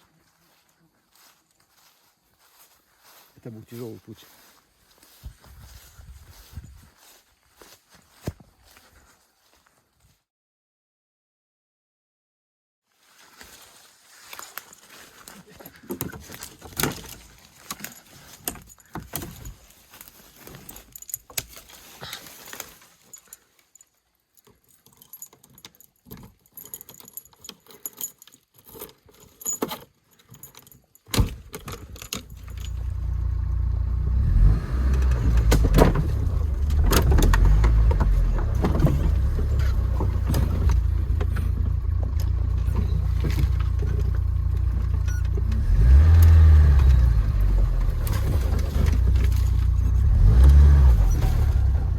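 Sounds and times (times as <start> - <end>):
keys rattling and clicking: 14.4 - 33.2, 35.0 - 46.0, 46.9 - 51.9
car engine starting and running: 32.2 - 51.9.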